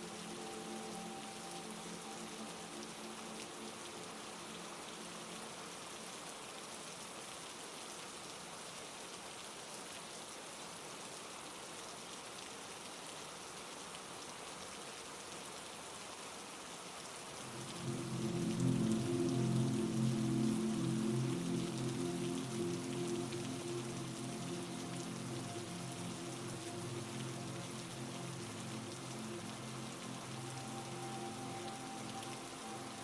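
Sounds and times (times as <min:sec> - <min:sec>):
low held musical tones: 0:00.0 - 0:06.6, 0:17.4 - 0:33.0
heavy rain falling: 0:00.0 - 0:33.0.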